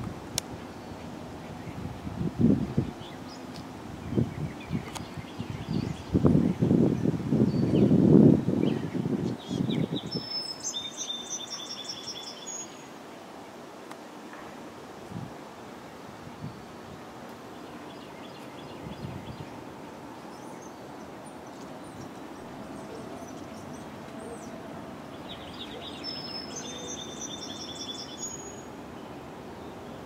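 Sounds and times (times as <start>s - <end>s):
songbird trilling: 9.4s - 12.8s, 21.9s - 28.7s.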